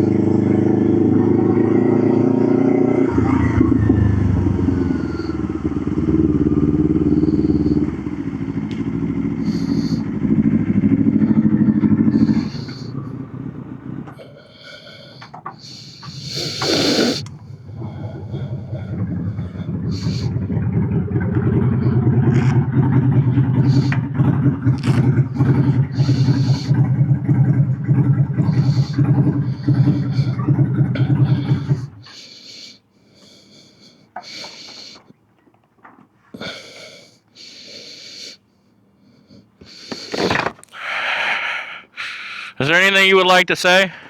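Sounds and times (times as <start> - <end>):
motorcycle engine idling: 0.0 - 35.1
short hissing bursts: 15.6 - 17.3.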